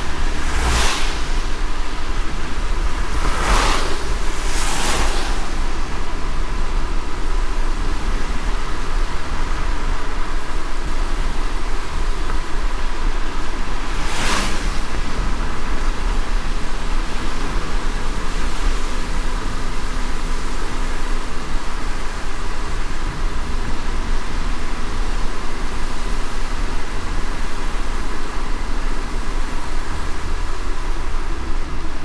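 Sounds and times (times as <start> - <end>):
car road rumble: 0.0 - 32.0
rain hiss: 0.0 - 32.0.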